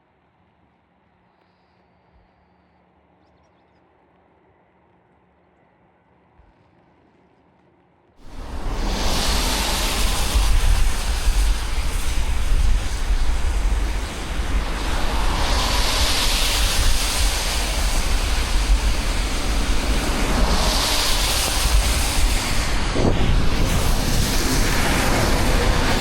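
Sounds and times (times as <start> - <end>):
rain hiss on wet road: 8.2 - 26.0
wind buffeting microphone: 8.2 - 26.0.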